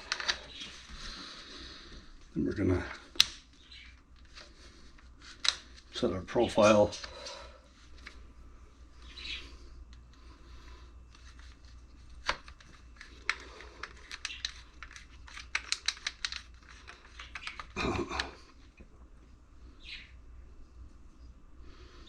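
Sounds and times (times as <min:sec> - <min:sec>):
hands clicking and tapping router: 0:12.2 - 0:18.4.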